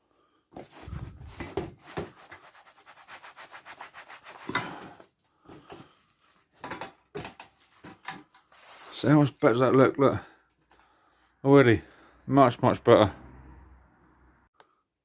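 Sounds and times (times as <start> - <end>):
cloth scuffing polish on a seat: 0.6 - 4.5.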